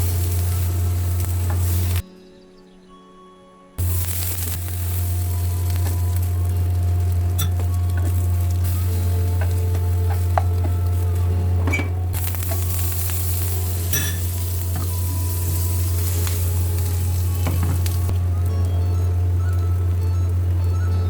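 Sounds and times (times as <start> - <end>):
bread sizzling in a pan: 0.0 - 2.0, 3.8 - 21.0
steady low hum: 0.0 - 2.0, 3.8 - 21.0.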